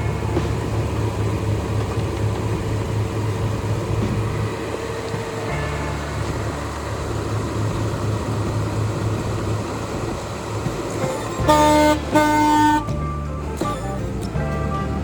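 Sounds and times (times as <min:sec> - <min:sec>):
steady low hum: 0:00.0 - 0:15.0
car horn blasts: 0:11.0 - 0:15.0.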